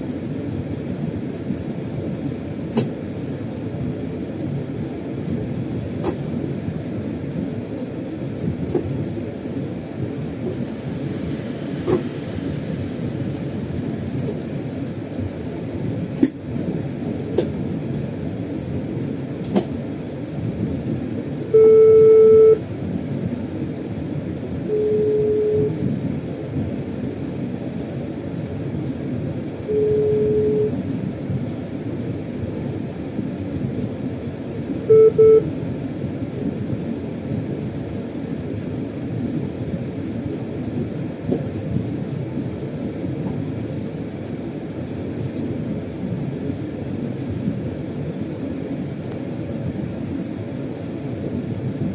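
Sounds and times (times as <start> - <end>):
train rumbling on rails: 0.0 - 51.9
warning buzzer beeps: 21.6 - 22.6, 24.7 - 25.8, 29.7 - 30.8, 34.9 - 35.4.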